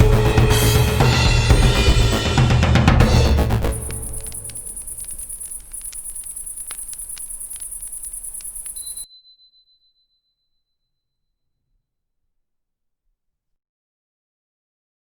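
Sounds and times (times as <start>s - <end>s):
campfire crackling: 3.0s - 9.0s
crickets chirping: 3.0s - 9.1s.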